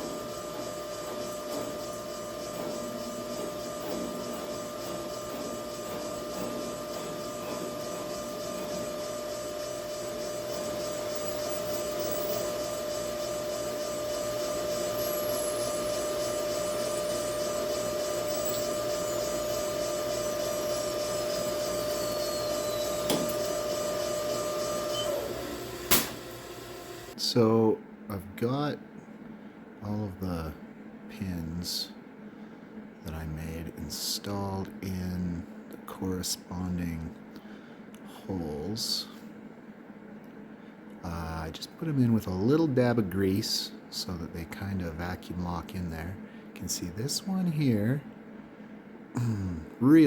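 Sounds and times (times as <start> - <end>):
electric motor whine: 0.0 - 27.2.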